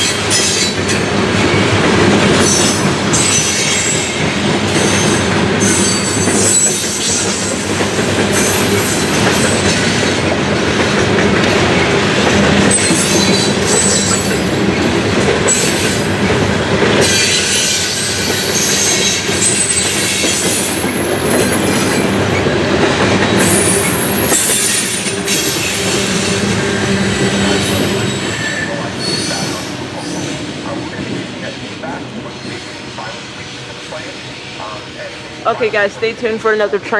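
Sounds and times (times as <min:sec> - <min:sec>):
train wheels rumbling on rails: 0:00.0 - 0:36.9
flange squeals: 0:23.2 - 0:31.0.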